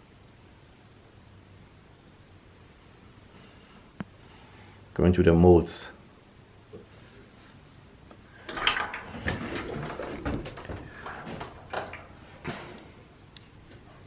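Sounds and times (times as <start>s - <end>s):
knocks scrapes and rustles: 8.4s - 12.8s.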